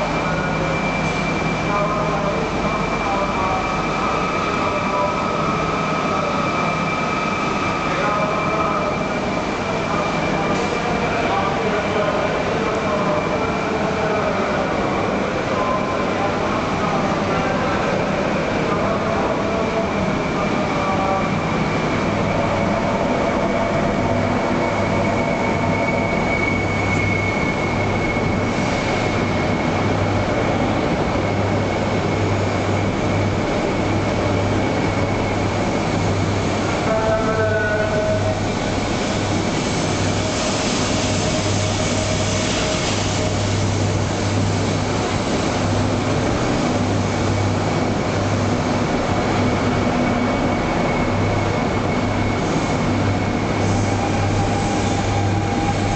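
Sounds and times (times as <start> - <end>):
constant high whine: 0.0 - 55.9
train electrical hum: 0.0 - 55.9
hiss: 39.0 - 43.9.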